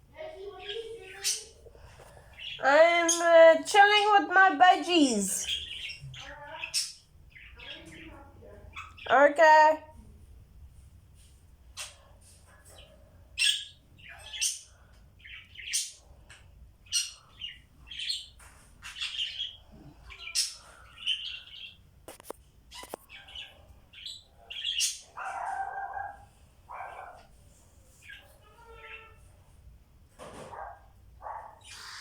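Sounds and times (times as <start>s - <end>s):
budgerigars chirping: 5.4s - 9.1s, 12.7s - 16.0s, 22.7s - 26.1s.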